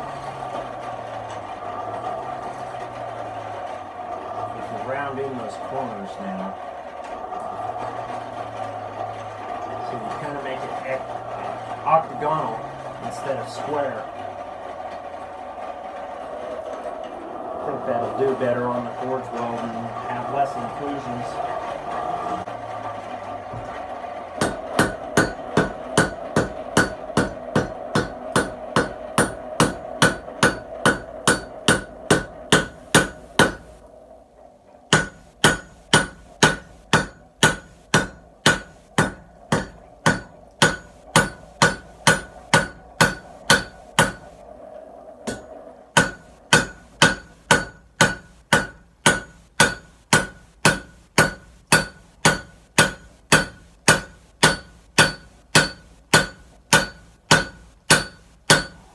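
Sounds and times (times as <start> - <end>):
steady hum: 0.0 - 58.9
hammer ringing on hot metal: 24.4 - 33.8, 34.9 - 44.4, 45.2 - 58.9.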